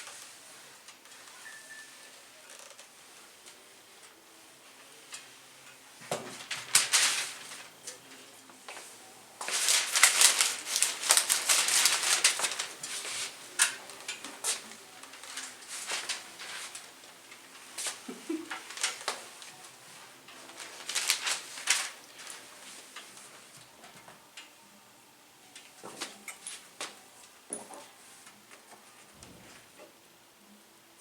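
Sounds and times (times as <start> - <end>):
scratchy rustling with clicks: 9.4 - 16.9.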